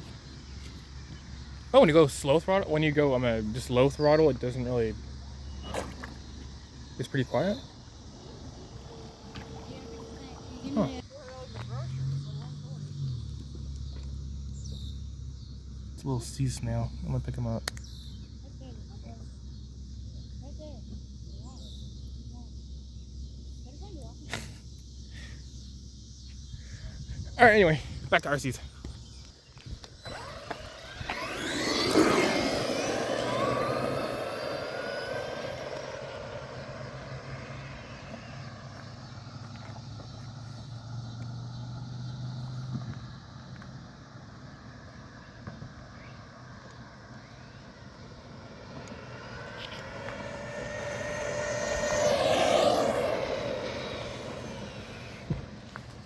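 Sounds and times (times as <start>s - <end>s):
electric motor whining: 5.5s - 11.0s, 29.6s - 39.6s, 47.0s - 56.0s.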